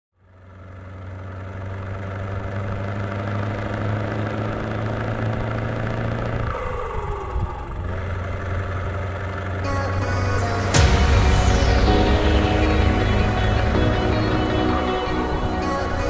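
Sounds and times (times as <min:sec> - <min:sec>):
truck engine idling: 0:00.2 - 0:16.0
falling whine: 0:09.7 - 0:16.0.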